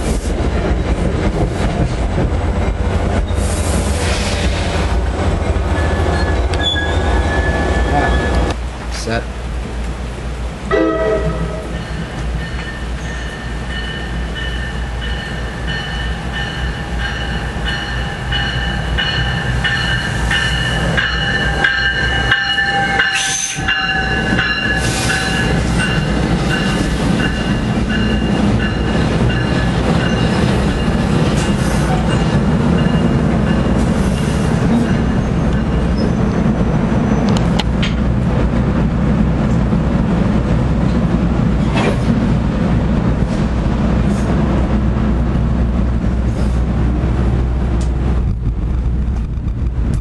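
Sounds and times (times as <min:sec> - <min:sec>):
train passing rumble: 0:00.0 - 0:50.0
steel wheels squealing: 0:05.7 - 0:08.5, 0:11.8 - 0:13.9, 0:34.0 - 0:37.4.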